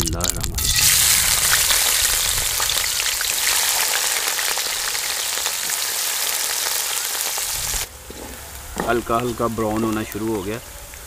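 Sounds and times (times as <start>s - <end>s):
onions sizzling in oil: 0.6s - 7.9s.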